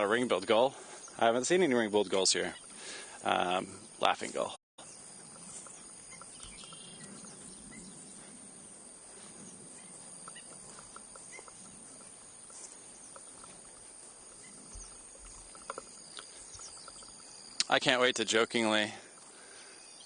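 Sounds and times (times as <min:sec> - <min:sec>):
faint chirps: 0:00.0 - 0:20.0
insects trilling: 0:00.0 - 0:20.0.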